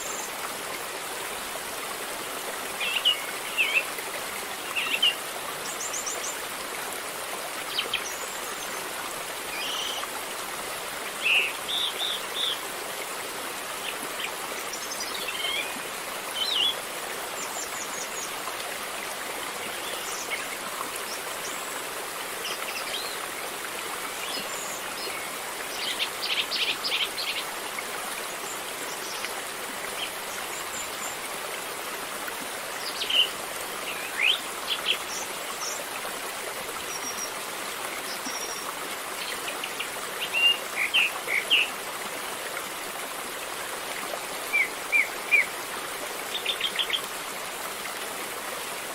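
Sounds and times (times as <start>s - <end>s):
river flowing: 0.0s - 48.9s.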